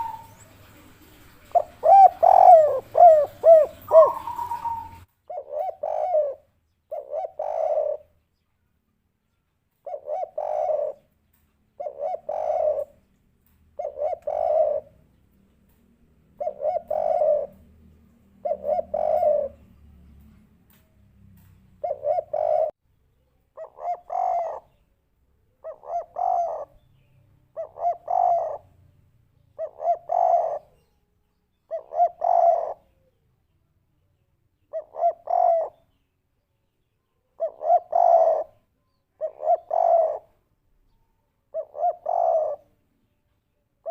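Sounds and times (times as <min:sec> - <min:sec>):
dove cooing: 0:00.0 - 0:08.2, 0:09.8 - 0:11.1, 0:11.8 - 0:13.0, 0:13.8 - 0:15.1, 0:16.3 - 0:20.3, 0:21.8 - 0:22.8, 0:23.6 - 0:24.9, 0:25.5 - 0:28.8, 0:29.6 - 0:30.9, 0:31.7 - 0:33.2, 0:34.6 - 0:36.0, 0:37.3 - 0:40.4, 0:41.5 - 0:42.8.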